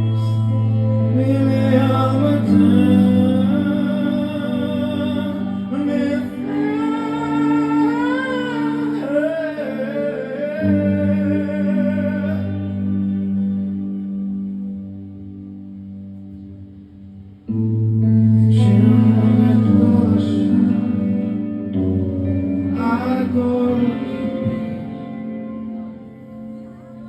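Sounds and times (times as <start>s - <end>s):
man singing wordless vocal: 0.0s - 13.2s, 18.3s - 21.7s, 22.7s - 25.5s
pop-rock ballad with guitar: 0.0s - 27.0s.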